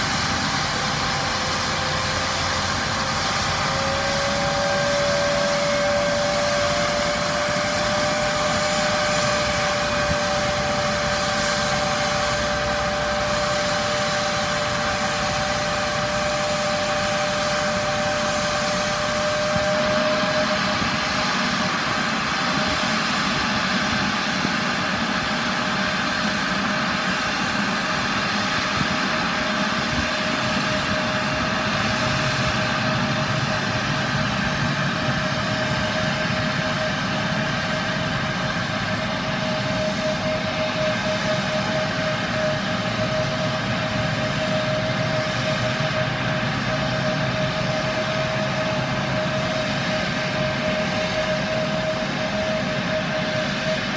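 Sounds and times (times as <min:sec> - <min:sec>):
rushing noise: 0:00.0 - 0:26.2
jet engine whine: 0:00.0 - 0:53.9.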